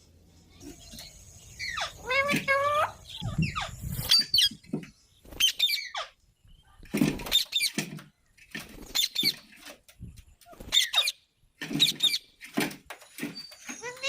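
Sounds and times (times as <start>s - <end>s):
parakeet squeaky calls: 1.5s - 4.6s, 5.4s - 6.2s, 10.7s - 11.2s.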